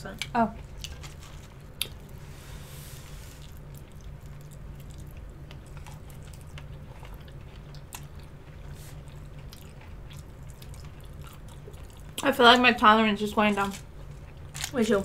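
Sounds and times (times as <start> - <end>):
low steady hum: 0.0 - 15.0
chewing and biting: 3.4 - 12.2.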